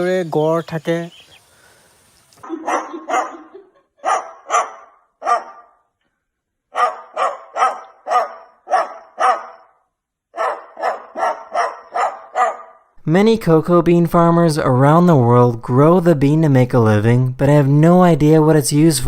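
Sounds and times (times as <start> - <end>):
dog barking: 2.5 - 5.9, 6.7 - 12.9.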